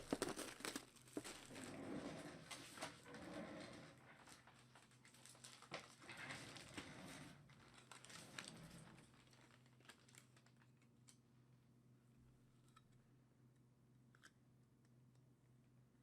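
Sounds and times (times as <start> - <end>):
packaging crinkling and rustling: 0.0 - 1.7, 3.6 - 6.8, 7.4 - 11.2.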